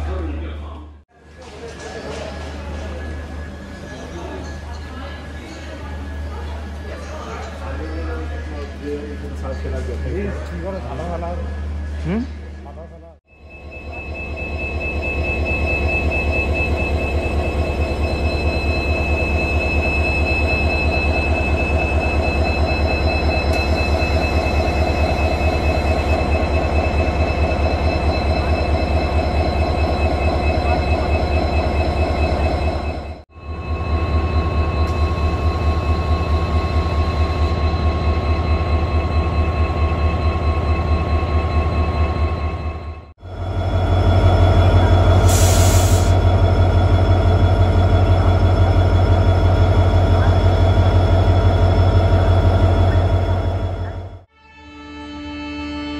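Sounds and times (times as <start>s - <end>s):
train wheels rumbling on rails: 13.9s - 54.3s.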